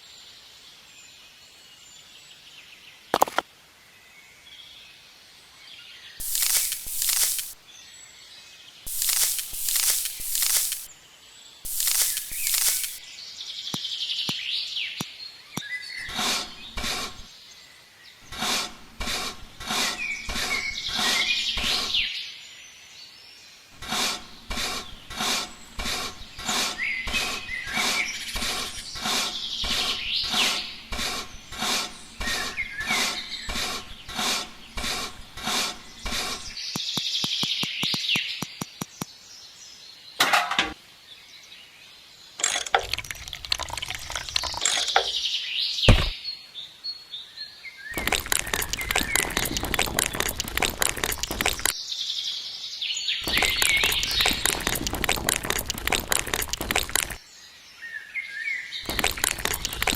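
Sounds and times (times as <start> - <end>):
birds chirping: 6.2 - 7.6, 8.8 - 11.0, 11.6 - 13.2, 15.6 - 22.2, 23.8 - 39.2, 47.9 - 51.7, 53.0 - 57.3
rhythmic scraping strokes: 6.2 - 7.6, 8.9 - 10.9, 11.7 - 13.0.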